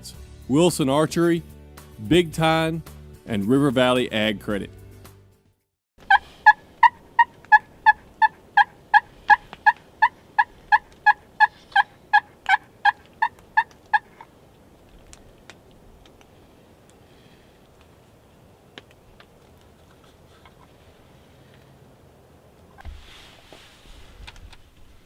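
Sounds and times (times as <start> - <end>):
turkey yelps: 6.1 - 14.2.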